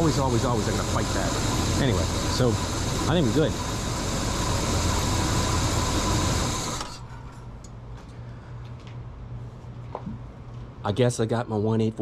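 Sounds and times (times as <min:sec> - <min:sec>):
car engine idling roughly: 0:00.0 - 0:06.8.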